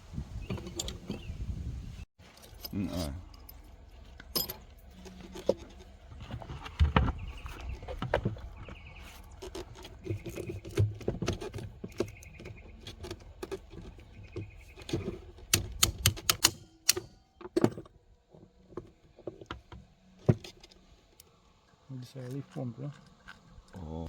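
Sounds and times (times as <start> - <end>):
low background rumble: 0.0 - 11.1
metallic clicks of tools and parts: 14.8 - 17.9.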